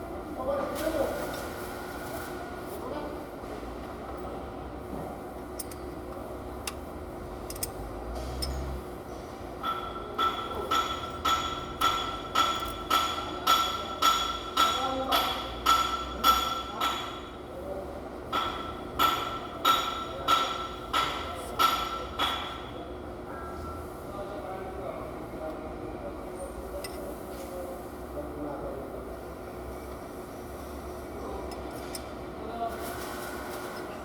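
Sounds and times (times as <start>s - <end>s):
hammer striking metal: 9.6s - 17.3s, 18.3s - 22.7s.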